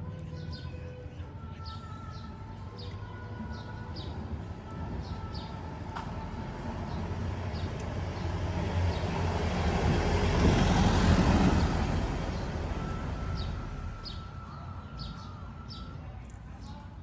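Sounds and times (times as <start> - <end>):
vehicle passing by: 5.7 - 15.4.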